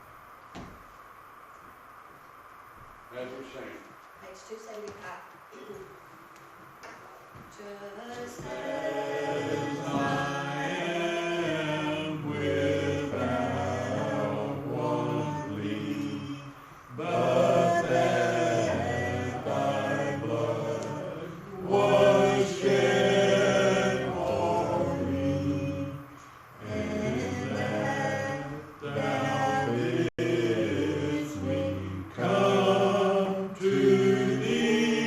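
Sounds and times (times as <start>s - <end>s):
congregation singing a hymn: 7.6s - 35.0s
singers breathing: 26.1s - 26.6s.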